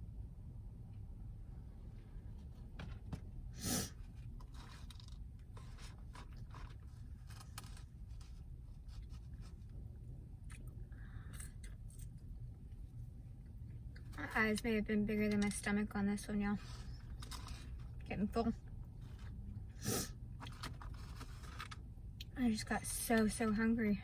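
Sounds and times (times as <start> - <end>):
steady low hum: 0.0 - 24.0
small clicks and scrapes: 4.0 - 9.8, 16.5 - 18.1, 19.0 - 19.4, 20.4 - 21.8.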